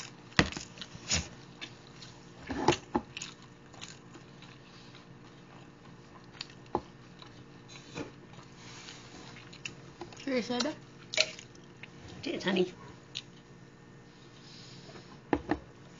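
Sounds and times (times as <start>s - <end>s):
close-up chewing of food: 0.0s - 12.0s
steady low hum: 0.0s - 15.9s.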